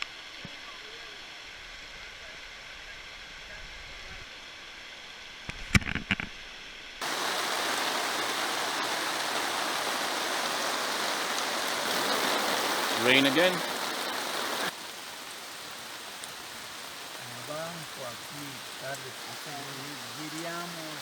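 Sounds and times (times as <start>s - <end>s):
hiss of rain falling: 0.0s - 5.4s, 7.0s - 21.0s
quiet forest background: 0.0s - 5.5s, 6.4s - 21.0s.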